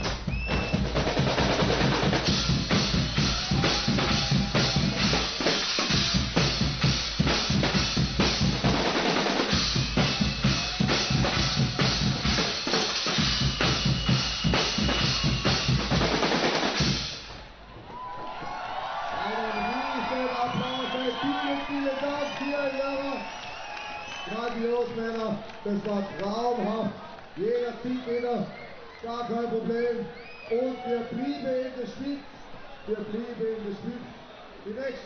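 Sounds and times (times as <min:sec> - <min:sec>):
drum section playing fast beat: 0:00.0 - 0:17.6.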